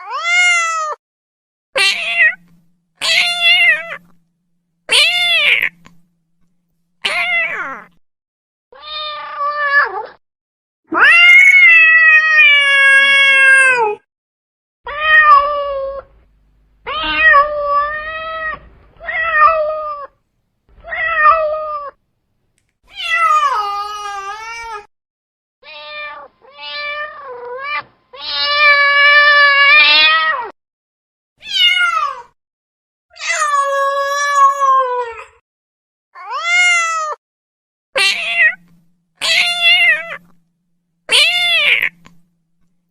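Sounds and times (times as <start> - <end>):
cat meowing: 1.8 - 4.2, 4.9 - 6.1, 7.0 - 8.0, 8.8 - 10.2, 14.9 - 16.1, 16.8 - 20.2, 20.8 - 22.0, 25.6 - 30.5, 31.4 - 32.3, 36.2 - 37.2, 38.0 - 40.4, 41.1 - 42.3.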